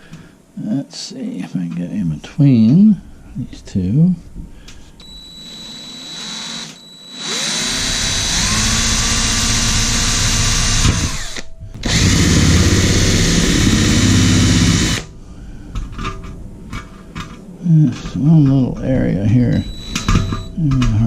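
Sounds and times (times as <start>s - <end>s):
electric drill boring into steel: 5.4s - 15.1s, 19.5s - 20.5s.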